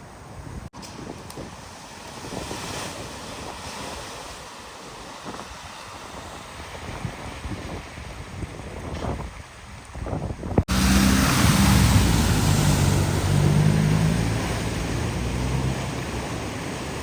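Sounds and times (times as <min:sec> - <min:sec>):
wind buffeting microphone: 0:00.0 - 0:17.0
floodwater splashing: 0:10.7 - 0:17.0.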